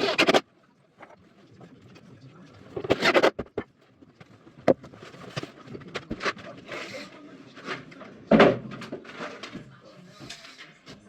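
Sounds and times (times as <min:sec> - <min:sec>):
boards scraping and rubbing: 0:00.0 - 0:00.4, 0:02.8 - 0:03.7.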